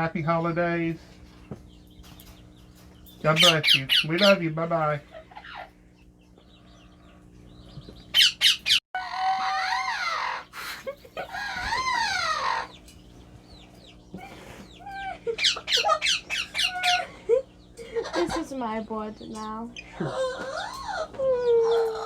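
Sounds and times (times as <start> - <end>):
parrot chirps: 3.4 - 4.4, 8.1 - 8.8, 14.8 - 17.1
parrot squawks: 3.4 - 4.4, 8.1 - 12.7, 15.3 - 17.1.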